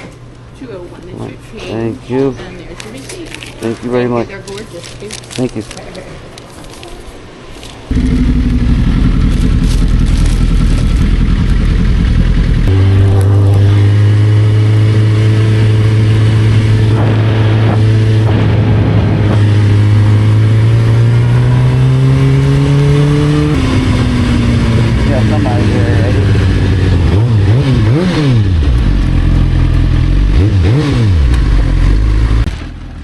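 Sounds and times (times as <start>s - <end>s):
motorcycle engine running: 7.9s - 33.0s.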